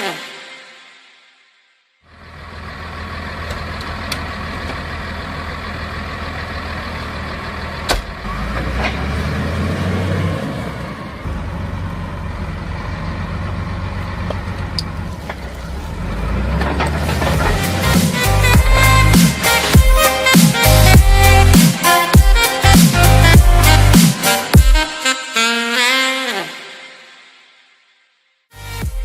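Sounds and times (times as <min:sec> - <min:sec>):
truck engine and road noise: 0:02.1 - 0:24.4.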